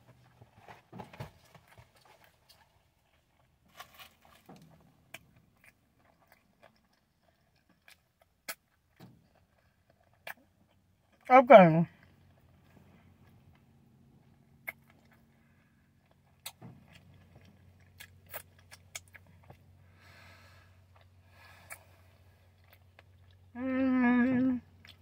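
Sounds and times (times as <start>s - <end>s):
chewing food: 1.4s - 11.3s, 11.9s - 20.2s, 20.8s - 23.6s, 24.2s - 25.0s
person humming mmm: 23.5s - 24.7s.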